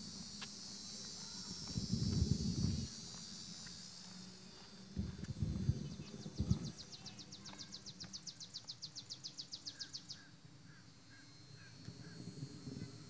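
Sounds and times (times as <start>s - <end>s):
high insect hum: 0.0s - 13.0s
songbird trilling: 5.8s - 12.2s.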